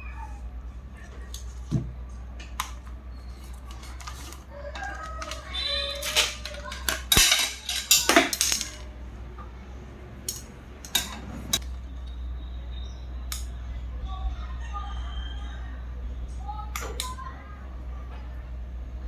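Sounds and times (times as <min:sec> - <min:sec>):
metal parts and tools clinking: 0:03.3 - 0:09.0, 0:10.2 - 0:11.6.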